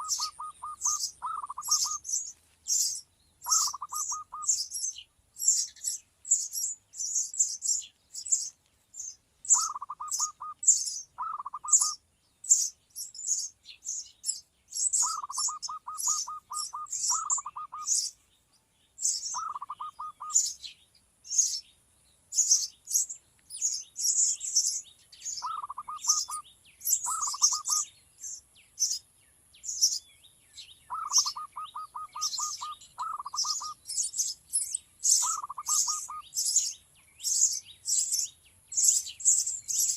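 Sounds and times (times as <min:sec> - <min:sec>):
bird stuttering call: 0:00.0 - 0:02.3, 0:03.4 - 0:04.9, 0:09.5 - 0:12.0, 0:15.0 - 0:18.1, 0:19.3 - 0:20.6, 0:25.4 - 0:26.4, 0:27.0 - 0:27.9, 0:30.9 - 0:33.8, 0:35.1 - 0:36.2
small birds chirping: 0:00.0 - 0:39.9.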